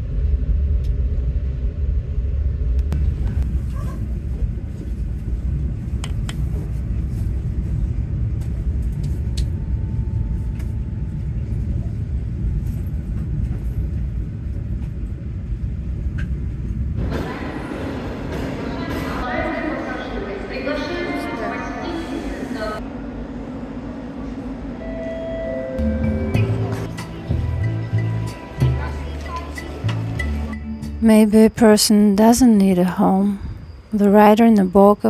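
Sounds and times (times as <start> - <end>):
road vehicle rumble: 0.0 - 20.7, 25.8 - 31.6.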